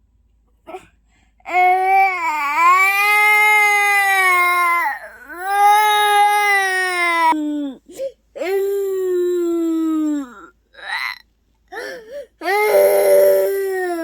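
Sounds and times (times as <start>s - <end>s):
baby crying: 1.5s - 7.4s, 11.8s - 14.0s.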